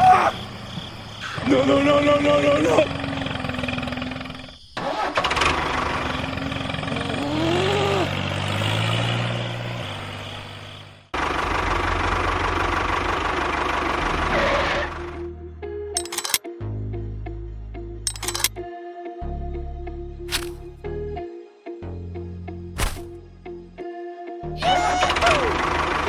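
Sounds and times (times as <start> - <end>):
engine running: 2.2 - 15.3, 18.1 - 18.6, 20.3 - 20.7, 25.0 - 26.0.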